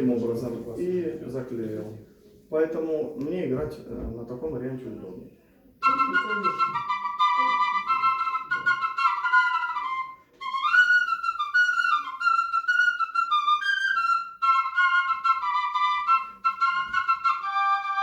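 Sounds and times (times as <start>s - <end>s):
double flute folk tune: 5.8s - 18.0s.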